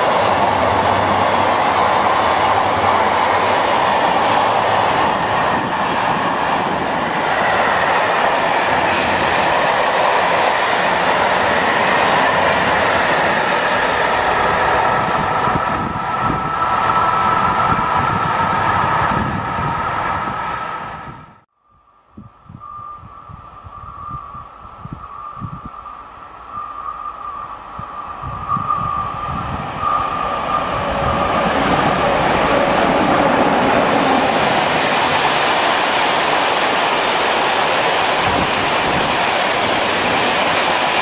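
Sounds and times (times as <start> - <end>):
train wheels rushing on rail: 0.0 - 21.4, 23.6 - 41.0
high wheel squeal: 22.5 - 35.9.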